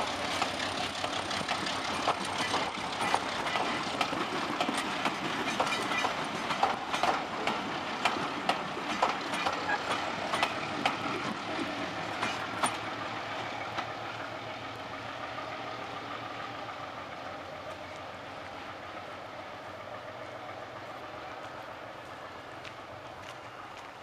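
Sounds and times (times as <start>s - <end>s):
wheels clicking over rail joints: 0.0s - 14.8s
train rolling past: 0.0s - 24.0s.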